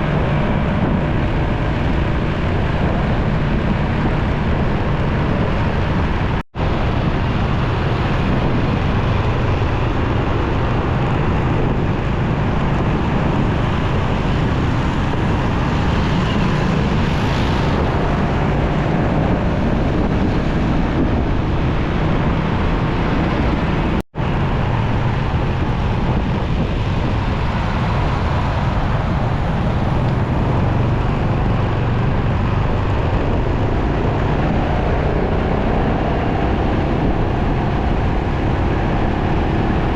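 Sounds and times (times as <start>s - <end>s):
wind rush on microphone: 0.0s - 39.9s.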